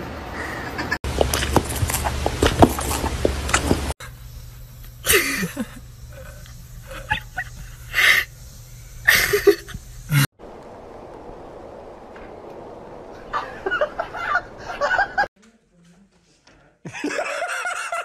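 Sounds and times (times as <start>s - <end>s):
chimpanzee huffing: 5.1s - 8.4s.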